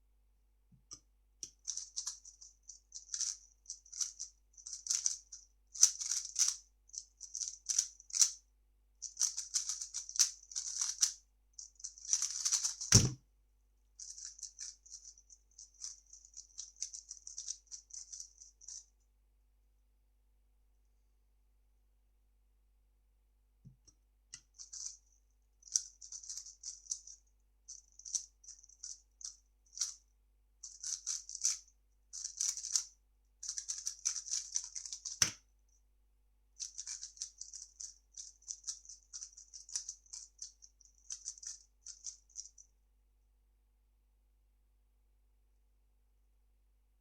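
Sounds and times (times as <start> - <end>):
speed cube clicking: 1.4 - 2.2, 3.0 - 5.2, 5.8 - 6.6, 7.2 - 8.4, 9.1 - 11.2, 11.8 - 13.2, 30.7 - 31.6, 32.2 - 32.8, 33.4 - 35.4, 36.6 - 42.2.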